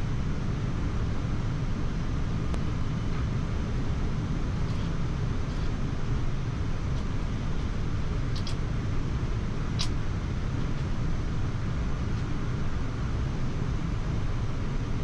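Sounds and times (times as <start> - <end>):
low aircraft cockpit rumble: 0.0 - 15.0
faint clicks: 8.3 - 8.6, 9.8 - 10.0.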